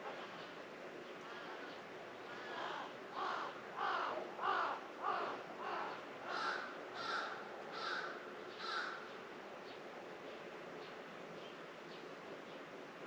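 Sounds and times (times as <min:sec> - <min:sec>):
crow cawing: 0:02.3 - 0:09.1.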